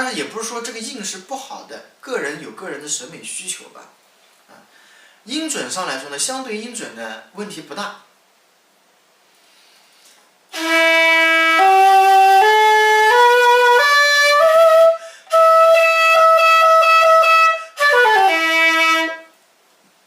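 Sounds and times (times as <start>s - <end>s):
player breathing: 4.6s - 5.2s, 9.4s - 10.3s, 15.0s - 15.3s
shakuhachi flute playing scale: 10.5s - 19.3s.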